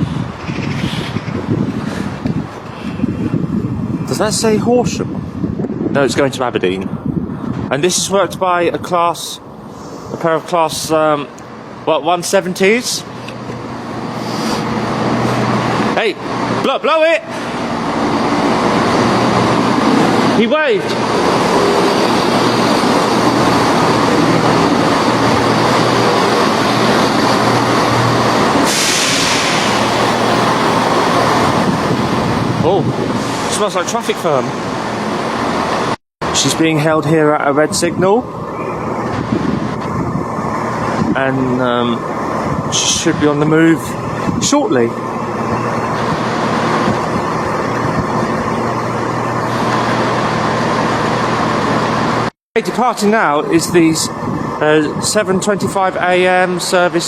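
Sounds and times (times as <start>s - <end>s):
train engines humming: 0.0s - 5.8s, 6.8s - 57.0s
air hissing: 9.6s - 10.3s, 13.1s - 15.9s, 20.9s - 32.4s.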